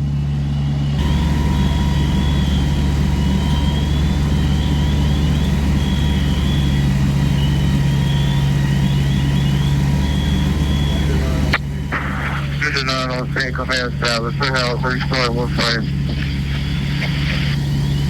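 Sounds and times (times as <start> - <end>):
heavy diesel engine droning: 0.0 - 18.0
faint high chirps: 1.0 - 18.0.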